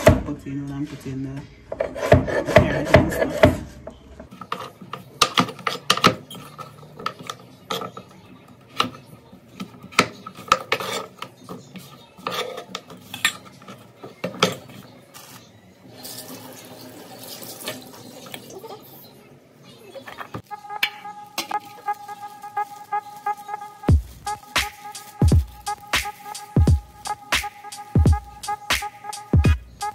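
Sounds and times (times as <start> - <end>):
metal utensils clinking on pot: 4.4 - 8.2, 9.9 - 14.8.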